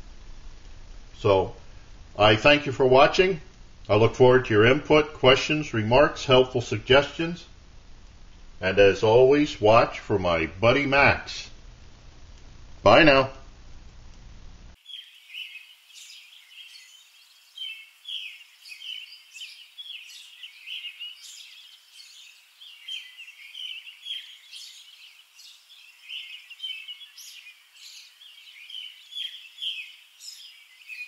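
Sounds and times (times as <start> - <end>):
songbirds singing: 14.7 - 31.0.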